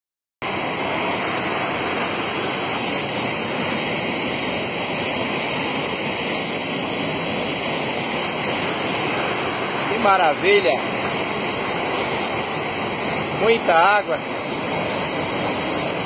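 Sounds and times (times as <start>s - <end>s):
waterfall rushing: 0.4s - 16.0s.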